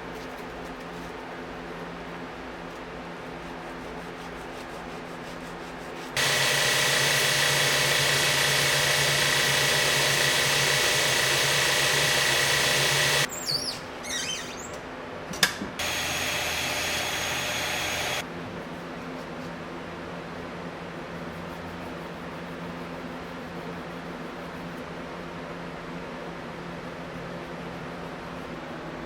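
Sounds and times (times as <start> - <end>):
power tool whining: 6.2 - 13.3, 15.8 - 18.2.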